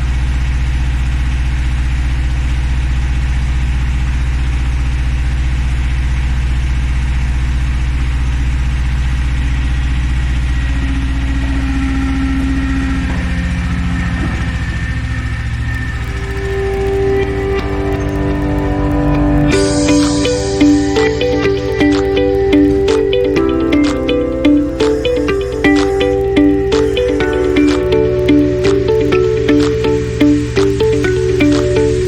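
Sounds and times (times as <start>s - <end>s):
tractor engine idling: 10.0s - 32.0s.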